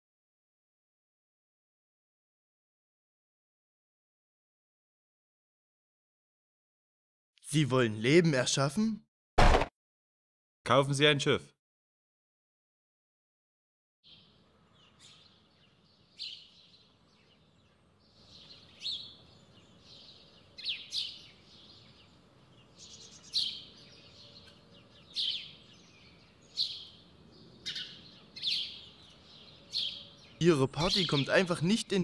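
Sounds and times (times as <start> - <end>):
faint outdoor background: 7.4 - 9.7, 10.6 - 11.6, 14.0 - 32.0
bird chirping: 14.0 - 32.0.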